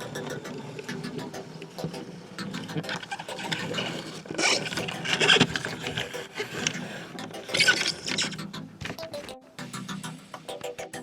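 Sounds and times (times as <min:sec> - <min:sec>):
small clicks: 0:00.0 - 0:09.4
rubbing and scraping: 0:02.6 - 0:09.4.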